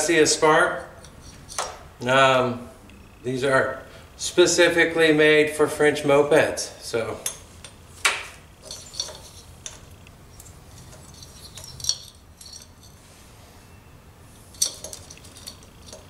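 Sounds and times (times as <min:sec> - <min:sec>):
light clicks and clinks of handling: 0:07.2 - 0:13.0, 0:14.5 - 0:16.0.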